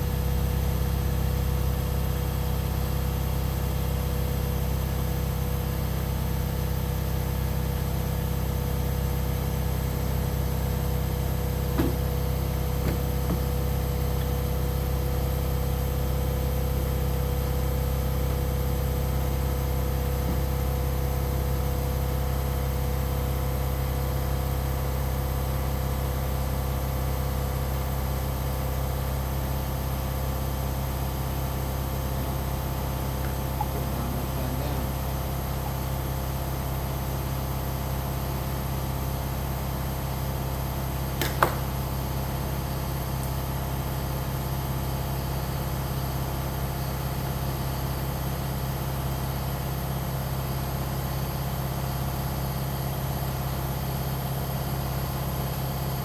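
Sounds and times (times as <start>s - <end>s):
tractor engine idling: 9.9s - 22.9s, 30.8s - 38.4s.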